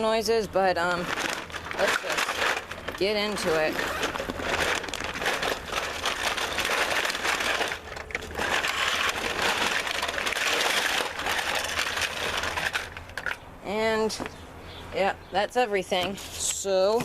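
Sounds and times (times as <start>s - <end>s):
plastic bag rustling: 0.0s - 13.4s.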